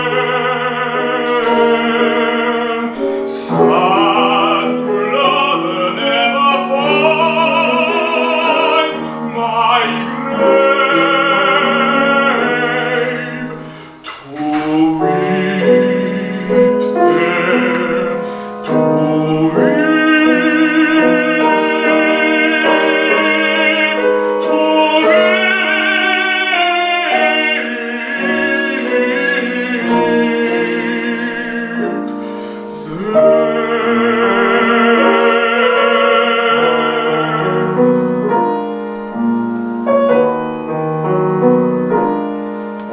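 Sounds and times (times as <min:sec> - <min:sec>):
piano accompaniment: 0:00.0 - 0:42.9
tenor singing: 0:00.0 - 0:42.9.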